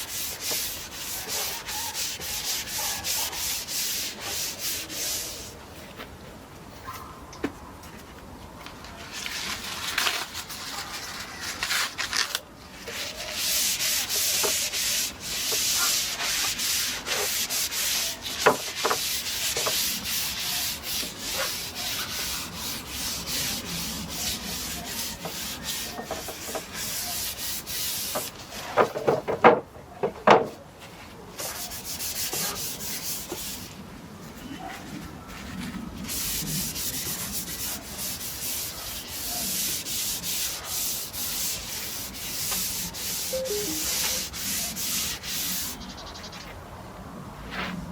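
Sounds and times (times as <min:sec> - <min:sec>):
brush scratching on wood: 0:00.0 - 0:05.5, 0:12.9 - 0:28.8, 0:31.4 - 0:33.7, 0:36.0 - 0:45.8.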